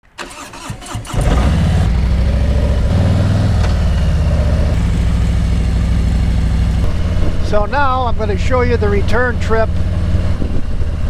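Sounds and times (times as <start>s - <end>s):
vehicle engine running: 1.0s - 11.0s.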